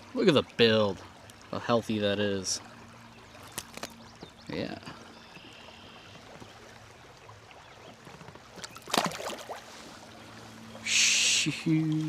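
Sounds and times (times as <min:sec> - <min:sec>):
quiet river ambience: 0:00.0 - 0:12.0
fish knocking in landing net: 0:08.6 - 0:09.4.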